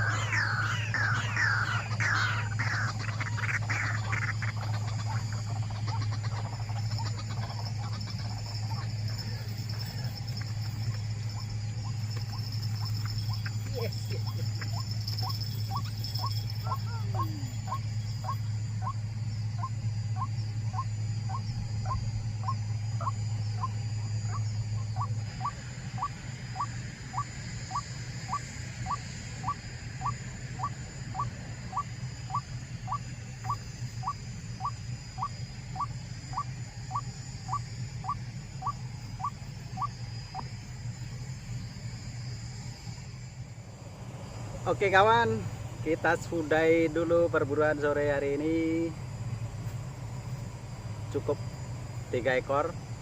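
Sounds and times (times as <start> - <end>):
waterhen calling: 0.0 - 19.0, 25.0 - 40.5
steady low hum: 0.0 - 53.0.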